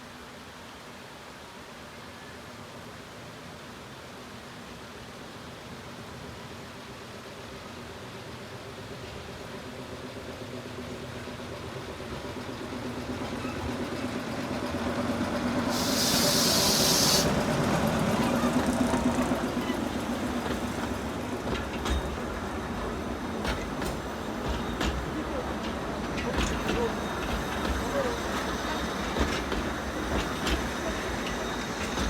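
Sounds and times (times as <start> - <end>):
small train engine running: 5.4 - 32.0
loud hiss of air: 15.4 - 18.6.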